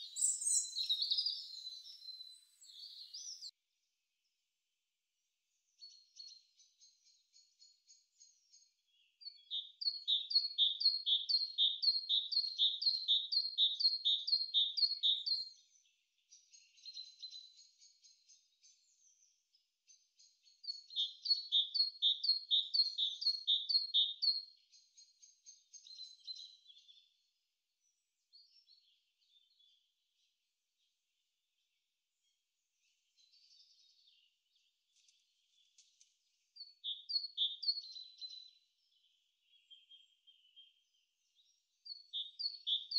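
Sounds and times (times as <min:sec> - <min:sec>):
soft high bird twittering: 0:00.0 - 0:03.5.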